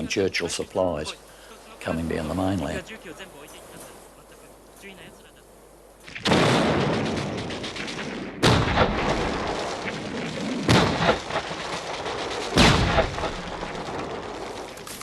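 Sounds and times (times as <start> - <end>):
rolling rumble: 5.9 - 15.0
heavy gun blasts: 6.1 - 15.0.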